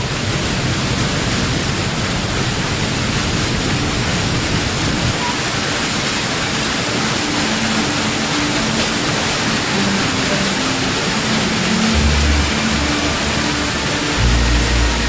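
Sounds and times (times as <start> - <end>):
water rushing: 0.0 - 15.0
soft background music: 3.8 - 15.0
deep bass note: 12.0 - 15.0.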